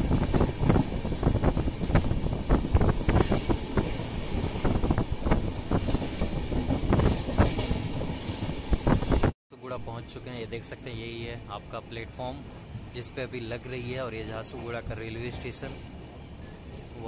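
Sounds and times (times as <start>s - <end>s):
train wheels clattering on rails: 0.0s - 9.3s, 13.9s - 17.0s.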